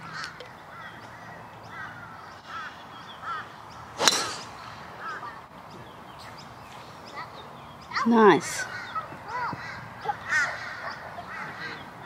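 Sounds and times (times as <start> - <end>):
birds calling: 0.0 - 12.0
golf ball struck by driver: 4.0 - 4.9.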